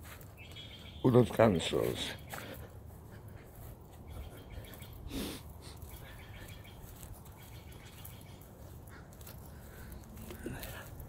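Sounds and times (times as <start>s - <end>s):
faint bird calls: 3.3s - 10.8s.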